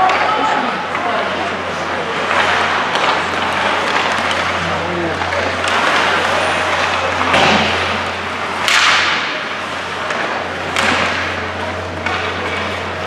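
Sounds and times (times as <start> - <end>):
hockey stick cracks: 8.6 - 11.4.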